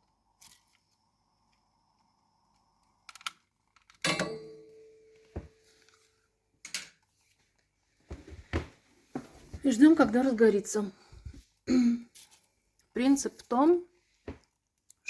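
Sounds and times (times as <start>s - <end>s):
ringing metal clank: 4.1s - 5.5s.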